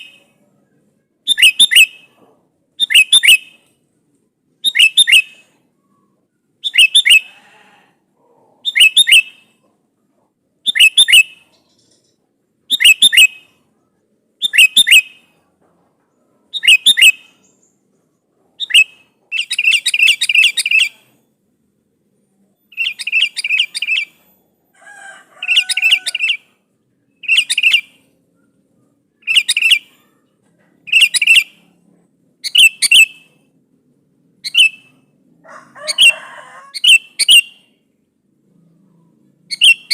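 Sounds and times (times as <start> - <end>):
bulbul calling: 1.3 - 3.7, 4.6 - 7.3, 8.4 - 9.8, 10.6 - 13.7, 14.4 - 15.4, 16.5 - 21.2, 22.7 - 24.2, 25.4 - 31.8, 32.4 - 33.4, 34.4 - 35.1, 35.8 - 37.8, 39.5 - 39.9.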